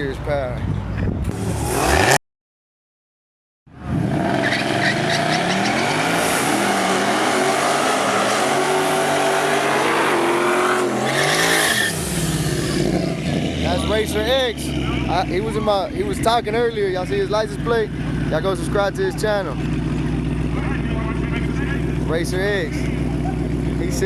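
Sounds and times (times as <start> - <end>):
race car engine revving: 1.3 - 2.2, 3.7 - 24.0
tyres spinning and squealing: 4.2 - 16.3.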